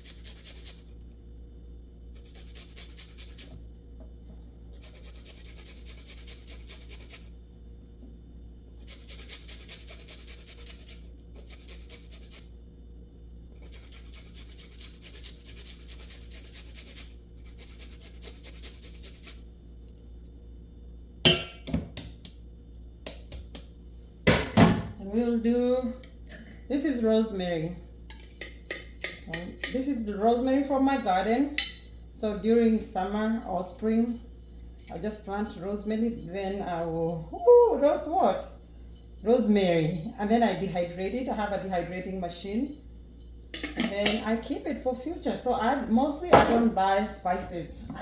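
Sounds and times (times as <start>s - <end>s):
food rasping on hand grater: 0.0s - 0.9s, 2.1s - 3.6s, 4.7s - 7.3s, 8.8s - 12.5s, 13.6s - 19.4s, 34.3s - 38.2s.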